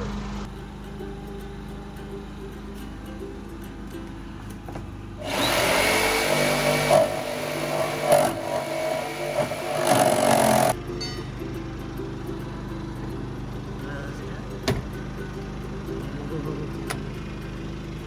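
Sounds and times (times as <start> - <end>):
power saw cutting metal: 0.4 - 11.2.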